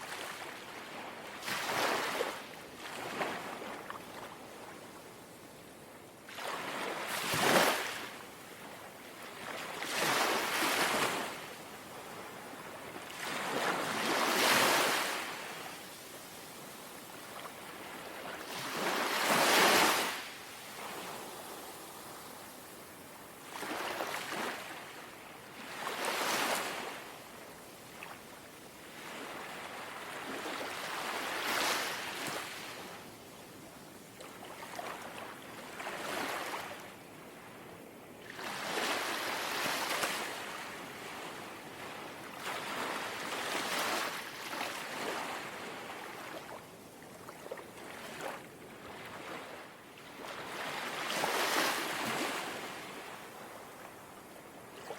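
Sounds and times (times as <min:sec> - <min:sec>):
small sea waves lapping: 0:00.0 - 0:04.8, 0:06.3 - 0:15.7, 0:16.5 - 0:27.1, 0:38.2 - 0:54.9.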